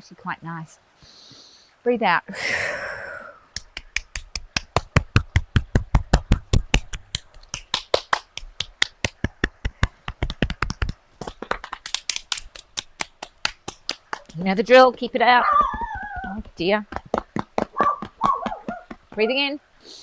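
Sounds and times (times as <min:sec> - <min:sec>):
taps and knocks on microphone: 0:03.6 - 0:19.3.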